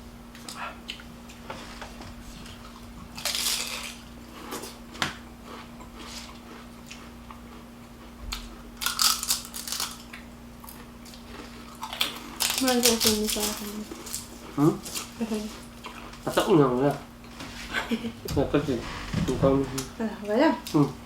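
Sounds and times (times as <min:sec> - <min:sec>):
faint steady hum: 0:00.0 - 0:21.0
person chewing food: 0:00.3 - 0:12.6, 0:13.9 - 0:16.6
crunchy bites: 0:08.3 - 0:15.2.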